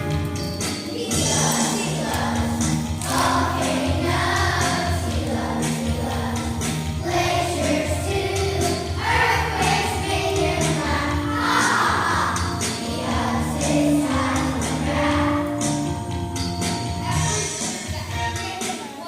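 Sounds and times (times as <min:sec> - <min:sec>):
instrumental backing music: 0:00.0 - 0:19.0
children singing in chorus: 0:01.0 - 0:15.8.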